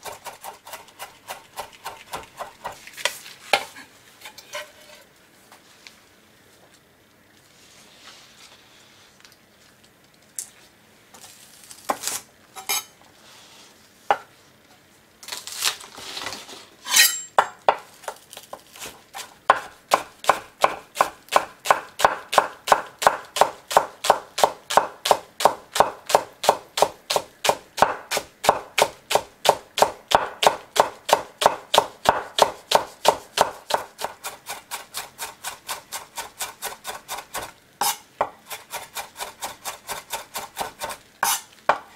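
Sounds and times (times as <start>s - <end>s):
knife slicing onion on wooden board: 0.0s - 5.0s, 16.9s - 41.9s.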